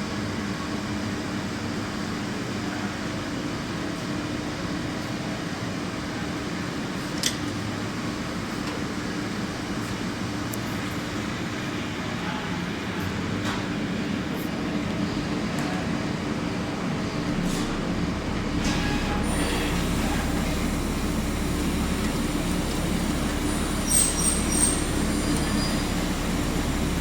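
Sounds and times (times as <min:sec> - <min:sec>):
lathe machine hum: 0:16.5 - 0:27.0.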